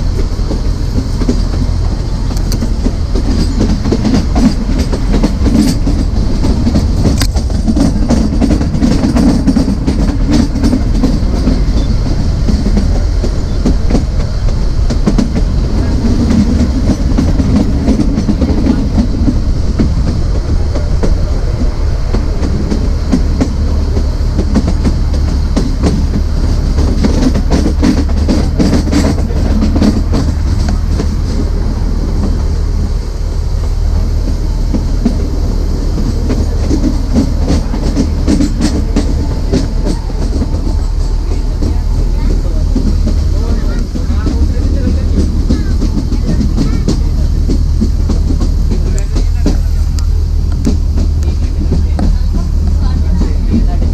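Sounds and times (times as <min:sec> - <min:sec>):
train rumbling along track: 0:00.0 - 0:53.9
wheels clicking on rails: 0:00.0 - 0:53.9.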